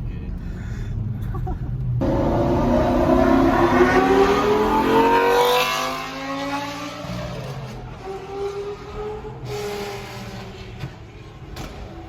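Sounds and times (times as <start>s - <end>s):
sports car accelerating hard: 2.0s - 10.6s.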